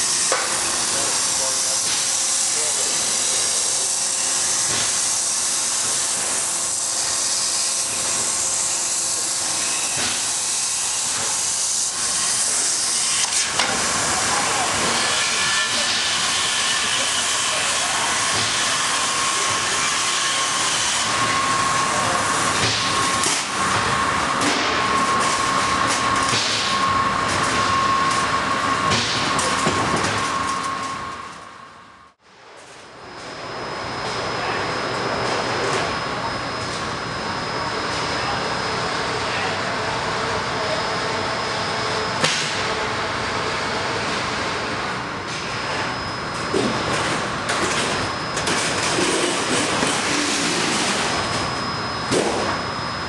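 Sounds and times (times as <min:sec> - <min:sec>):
plasma torch cutting metal: 0:00.0 - 0:23.8.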